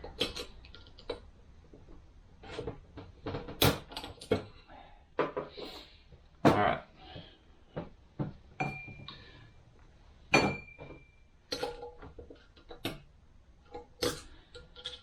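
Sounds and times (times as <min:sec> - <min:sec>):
metal parts clinking and knocking: 0:02.6 - 0:04.5, 0:10.4 - 0:13.0, 0:13.7 - 0:15.0.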